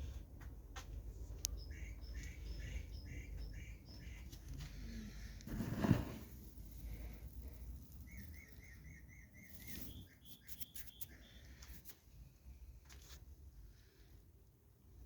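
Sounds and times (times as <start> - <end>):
small bird chirping: 1.4 - 4.9, 6.6 - 11.9.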